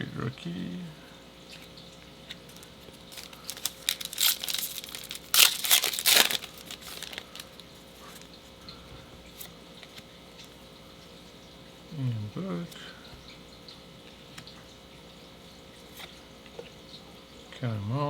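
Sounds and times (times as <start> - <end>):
plastic wrapper tearing and crinkling: 2.5 - 8.3.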